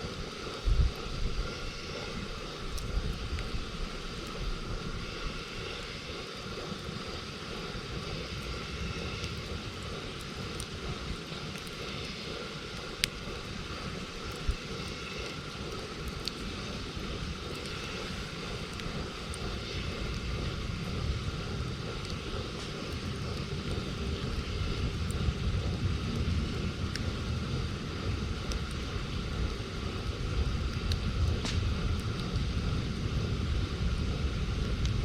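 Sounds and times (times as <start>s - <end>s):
campfire crackling: 0.0s - 35.0s
steady low rumble: 0.0s - 35.0s
sharp pop of fire: 31.4s - 31.8s.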